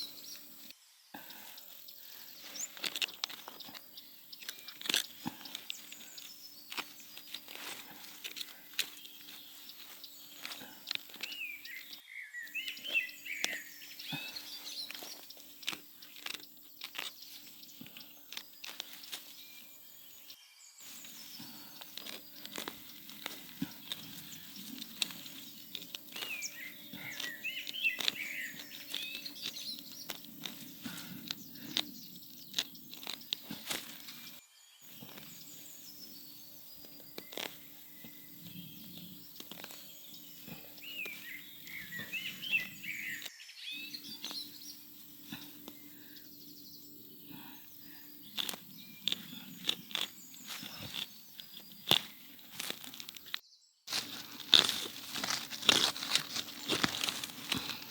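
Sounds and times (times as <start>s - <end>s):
birds chirping: 0.0s - 57.9s
crackling and crunching clicks: 2.6s - 12.0s, 12.6s - 19.7s, 21.3s - 35.6s, 36.7s - 43.3s, 48.2s - 57.9s.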